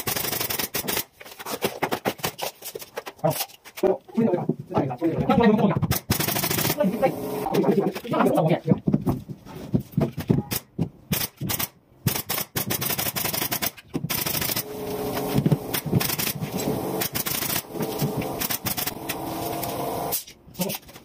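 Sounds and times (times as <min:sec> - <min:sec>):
nail gun firing: 0:00.0 - 0:01.1, 0:05.9 - 0:06.9, 0:10.5 - 0:20.2
steady hum: 0:06.4 - 0:08.0, 0:14.2 - 0:20.2.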